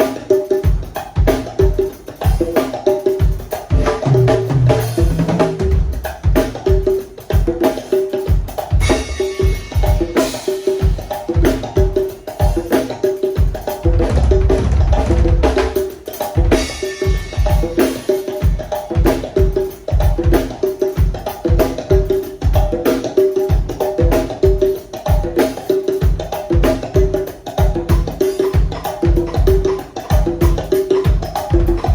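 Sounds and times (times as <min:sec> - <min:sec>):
conga tones: 0:00.0 - 0:31.9
cymbal wash: 0:08.8 - 0:10.9.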